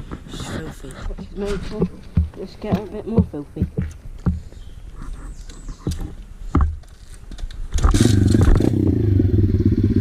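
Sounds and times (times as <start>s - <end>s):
motorbike engine revving: 7.8s - 10.0s.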